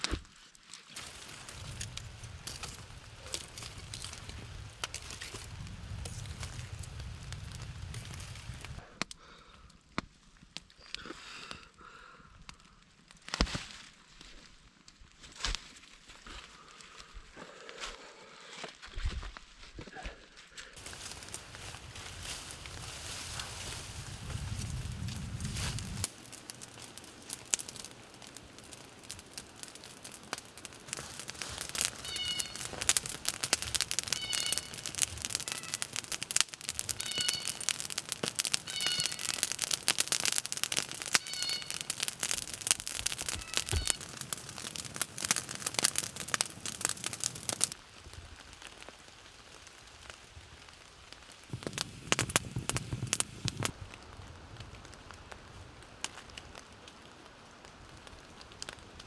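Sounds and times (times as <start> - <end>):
campfire crackling and popping: 0.9 - 9.2, 20.8 - 59.0
low rustle: 1.0 - 8.8, 20.8 - 36.9, 51.5 - 53.8
short high squeaks: 32.0 - 32.7, 34.1 - 36.0, 37.0 - 37.7, 38.6 - 39.4, 41.1 - 42.0, 43.2 - 44.0.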